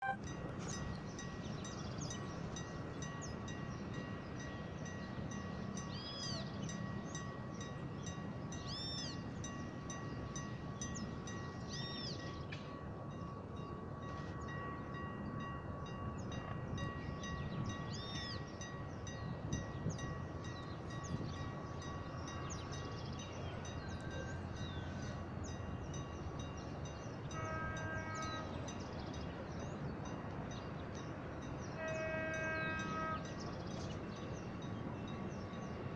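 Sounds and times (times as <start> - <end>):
distant locomotive horn: 0.0 - 0.3, 27.0 - 29.3, 31.6 - 34.0.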